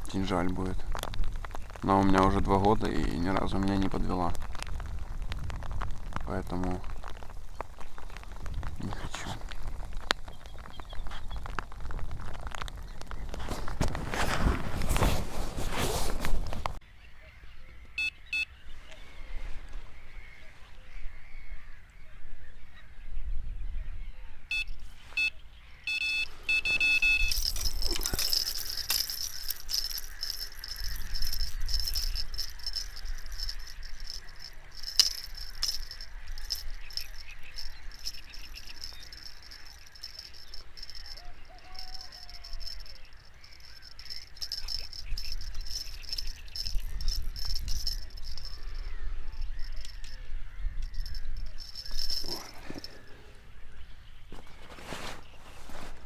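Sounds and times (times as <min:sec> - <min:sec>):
short honking calls: 0:25.9 - 0:27.4
high-pitched insect chirring: 0:25.9 - 0:52.9.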